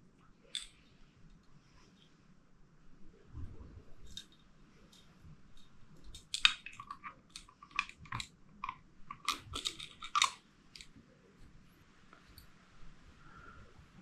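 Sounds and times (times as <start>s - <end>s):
small metal parts clicking and scraping: 0.5s - 2.1s, 4.0s - 10.9s.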